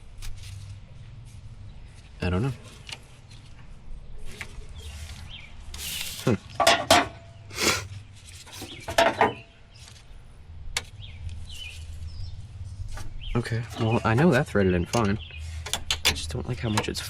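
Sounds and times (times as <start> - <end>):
metal tools scraping: 12.9 - 16.8.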